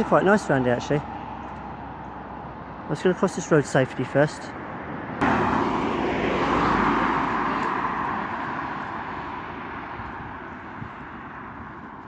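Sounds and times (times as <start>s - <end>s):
vehicle passing by: 4.6s - 12.0s.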